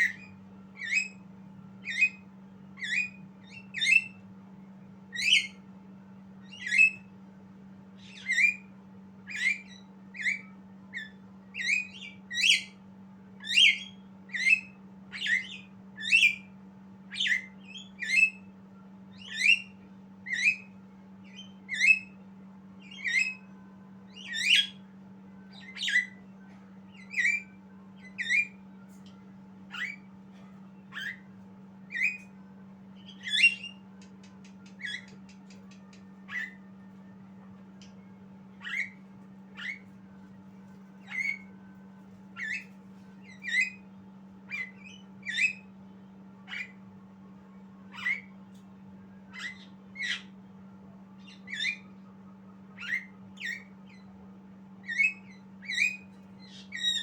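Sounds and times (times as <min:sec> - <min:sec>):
songbird whistled calls: 0:00.0 - 0:01.2, 0:01.8 - 0:04.2, 0:05.1 - 0:05.6, 0:06.4 - 0:07.1, 0:08.0 - 0:12.8, 0:13.4 - 0:16.5, 0:17.1 - 0:18.5, 0:19.1 - 0:22.2, 0:22.8 - 0:23.5, 0:24.1 - 0:24.9, 0:25.5 - 0:26.2, 0:26.9 - 0:28.6, 0:29.7 - 0:30.1, 0:30.8 - 0:32.3, 0:33.0 - 0:36.7, 0:38.6 - 0:39.9, 0:41.0 - 0:41.6, 0:42.4 - 0:43.9, 0:44.5 - 0:45.8, 0:46.4 - 0:46.8, 0:47.9 - 0:48.4, 0:49.3 - 0:50.4, 0:51.2 - 0:52.1, 0:52.7 - 0:54.1, 0:54.8 - 0:57.0.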